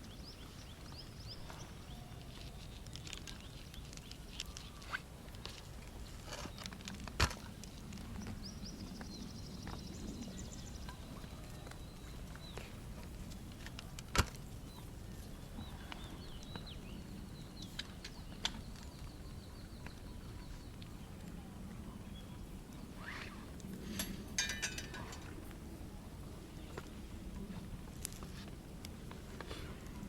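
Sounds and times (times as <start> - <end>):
small birds chirping: 0.0 - 5.0, 14.6 - 23.2
campfire crackling and popping: 2.0 - 9.2.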